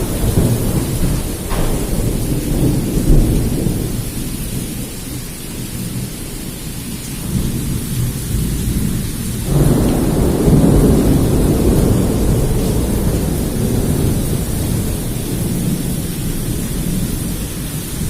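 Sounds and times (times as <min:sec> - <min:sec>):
deep rumbling thunder: 0:00.0 - 0:18.0
torrential rain: 0:00.0 - 0:18.0.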